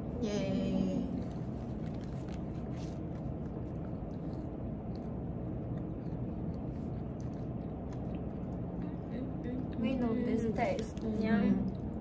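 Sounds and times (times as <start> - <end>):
low room hum: 0.0 - 12.0
crunchy chewing: 1.2 - 8.9.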